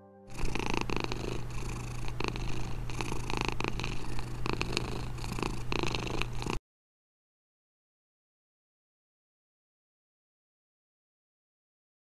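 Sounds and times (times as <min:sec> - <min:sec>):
cat purring: 0:00.3 - 0:06.6.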